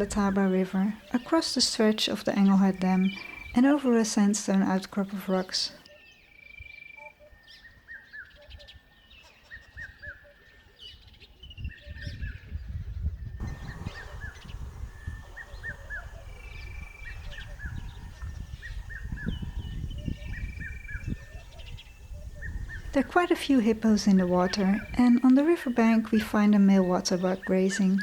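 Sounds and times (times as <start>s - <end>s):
birds chirping: 0.0s - 28.0s
whistled bird notes: 5.8s - 23.0s.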